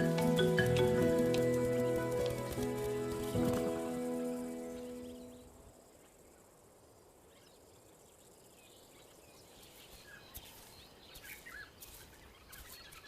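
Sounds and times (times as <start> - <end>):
insects: 0.0 - 13.0
small bird chirps: 7.3 - 13.0.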